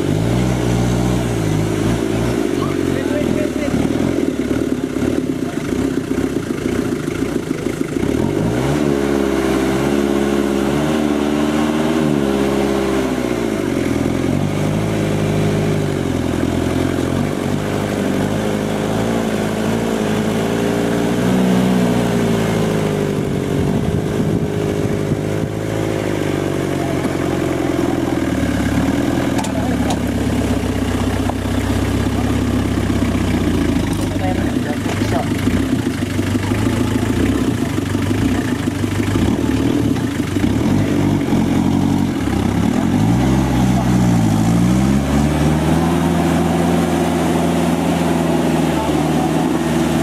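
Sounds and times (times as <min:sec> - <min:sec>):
off-road vehicle engine revving: 0:00.0 - 0:50.0.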